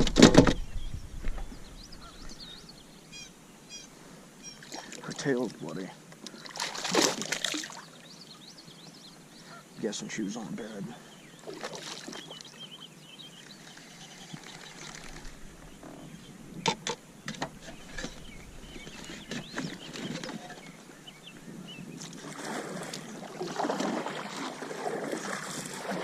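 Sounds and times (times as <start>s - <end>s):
sharp knocks on kayak: 0.0s - 0.6s
rough handling noise: 14.3s - 21.0s.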